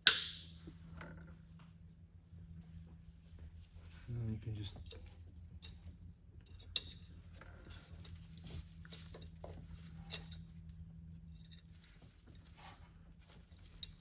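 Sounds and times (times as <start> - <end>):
steady low hum: 0.0 - 14.0
metallic clicks of wire and tool: 6.4 - 7.1.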